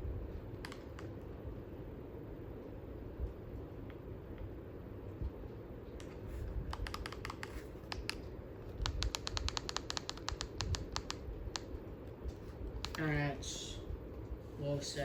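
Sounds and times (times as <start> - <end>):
ceiling fan whoosh: 0.0 - 15.0
remote buttons clicking: 6.0 - 11.7.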